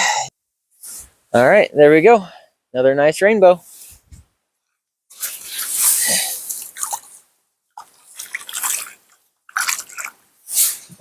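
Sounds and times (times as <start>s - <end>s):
water splashing and dripping: 5.6s - 10.4s.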